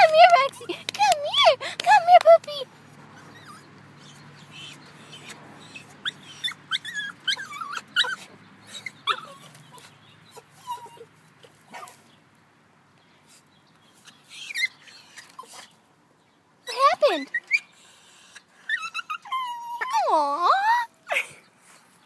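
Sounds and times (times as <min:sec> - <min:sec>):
puppy whining: 0:03.1 - 0:11.1, 0:14.0 - 0:15.7, 0:16.7 - 0:20.9.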